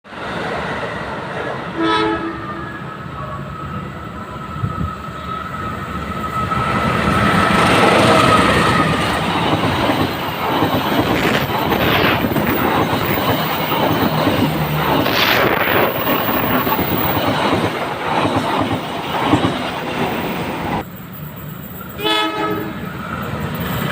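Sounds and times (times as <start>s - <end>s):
train passing: 0.1s - 23.9s
wheels clattering over rail joints: 7.2s - 22.0s.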